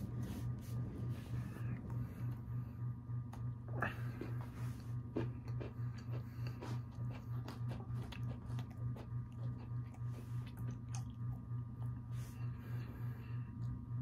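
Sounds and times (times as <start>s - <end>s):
throbbing low hum: 0.0s - 14.0s
chewing crunchy cookie: 3.7s - 12.3s.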